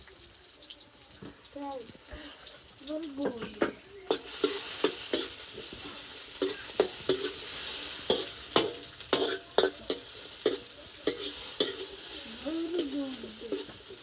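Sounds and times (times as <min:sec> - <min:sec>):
food sizzling in hot oil: 0:00.0 - 0:14.0
metal utensil clinking on pan: 0:03.2 - 0:14.0.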